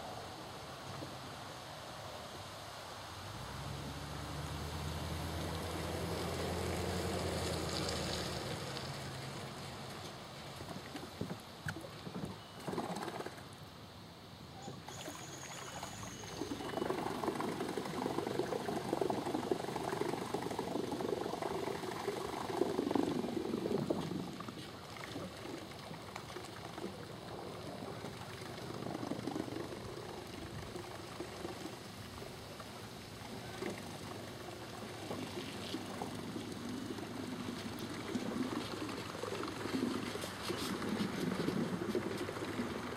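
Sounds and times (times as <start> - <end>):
water sloshing and trickling: 4.6 - 13.5, 14.6 - 42.9.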